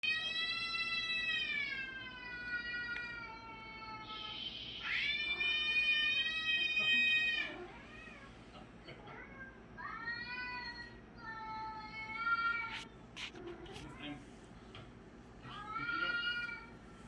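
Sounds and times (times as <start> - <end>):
cats yowling: 0.0 - 8.3
cat hissing: 12.6 - 13.9.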